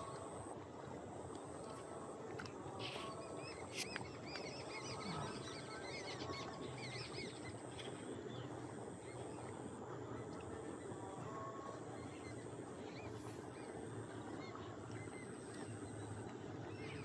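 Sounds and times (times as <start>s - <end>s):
low background bird chatter: 2.8s - 8.5s.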